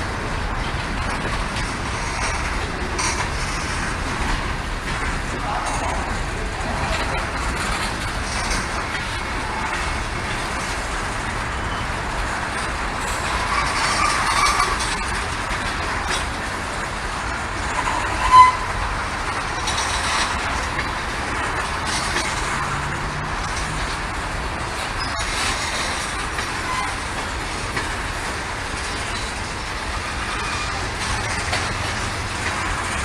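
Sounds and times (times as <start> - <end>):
freight train wheels rumbling: 0.0 - 33.0
train wheel squeal: 11.5 - 16.3, 17.5 - 21.4, 24.8 - 33.0.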